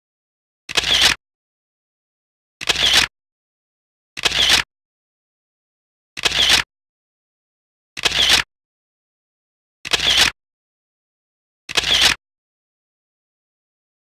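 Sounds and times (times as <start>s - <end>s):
camera shutter clicks: 0.7s - 1.2s, 2.6s - 3.1s, 4.2s - 4.7s, 6.2s - 6.7s, 8.0s - 8.5s, 9.9s - 10.4s, 11.7s - 12.2s.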